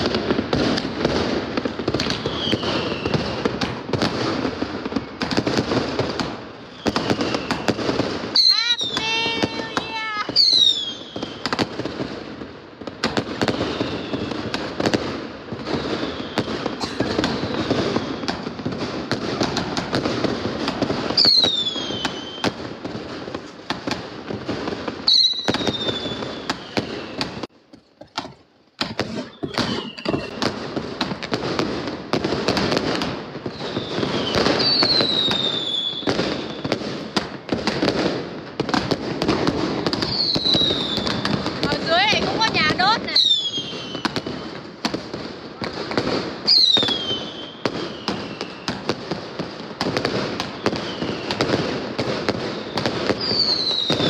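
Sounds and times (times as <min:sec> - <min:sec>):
firecrackers crackling and banging: 0:00.0 - 0:54.0
firework whistles falling in pitch: 0:02.0 - 0:03.4, 0:06.6 - 0:11.7, 0:13.4 - 0:14.6, 0:15.6 - 0:18.4, 0:21.1 - 0:22.6, 0:25.0 - 0:27.5, 0:29.1 - 0:30.5, 0:33.5 - 0:36.8, 0:40.0 - 0:44.6, 0:46.4 - 0:49.0, 0:50.4 - 0:51.6, 0:52.5 - 0:54.0.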